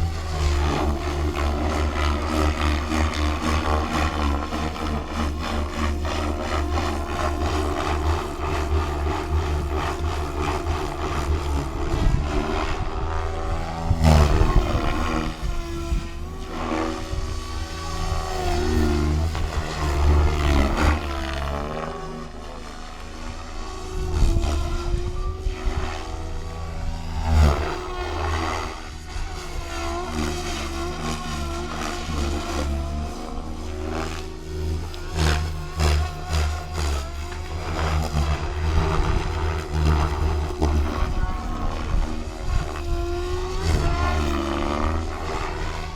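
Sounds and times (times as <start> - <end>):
rc helicopter rotor and motor whine: 0.0 - 45.9.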